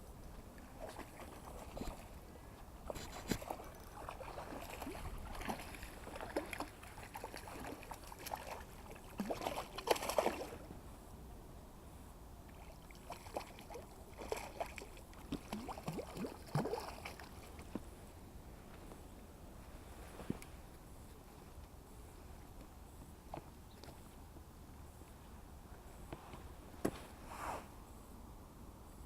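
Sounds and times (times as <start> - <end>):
water splashing and gurgling: 0.6 - 2.2, 2.9 - 10.7, 12.5 - 17.7.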